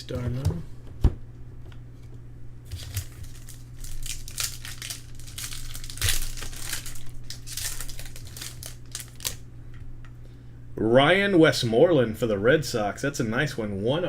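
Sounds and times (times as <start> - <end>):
low electrical hum: 0.0 - 14.0
card pack wrapper crinkling: 2.7 - 9.4.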